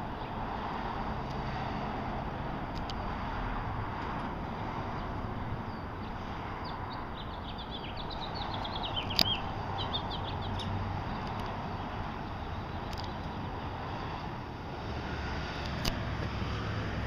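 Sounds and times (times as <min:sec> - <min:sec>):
outdoor background noise: 0:00.0 - 0:17.0
small bird chirping: 0:05.7 - 0:13.6
sharp click: 0:09.0 - 0:09.4, 0:15.6 - 0:16.0.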